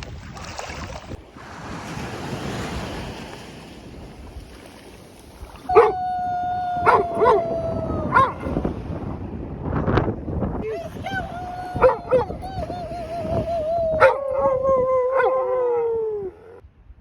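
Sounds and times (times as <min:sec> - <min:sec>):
ocean surf: 0:01.2 - 0:09.5, 0:10.6 - 0:16.3
dog yelping: 0:05.7 - 0:06.0, 0:06.8 - 0:08.6, 0:11.8 - 0:12.4, 0:13.9 - 0:15.9.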